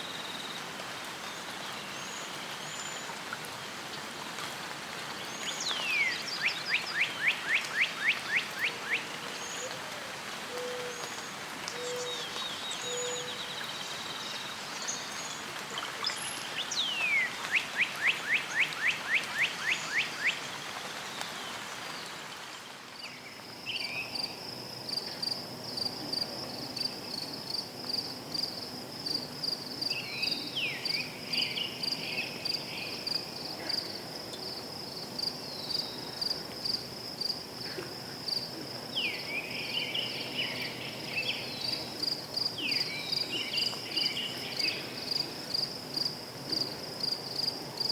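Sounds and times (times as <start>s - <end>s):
background hiss: 0.0s - 47.9s
crickets chirping: 16.3s - 47.9s.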